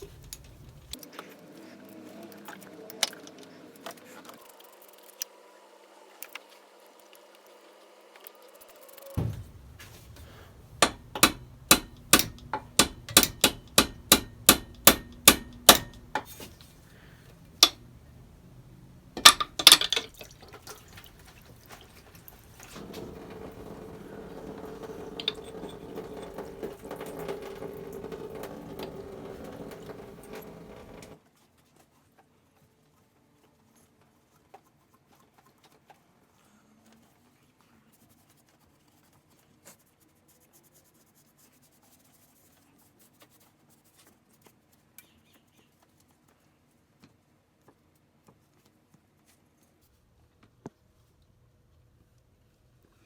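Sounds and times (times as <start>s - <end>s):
sharp metallic taps: 9.2s - 16.3s
knocks: 9.2s - 16.6s, 22.6s - 31.2s
steady hum: 9.2s - 31.2s.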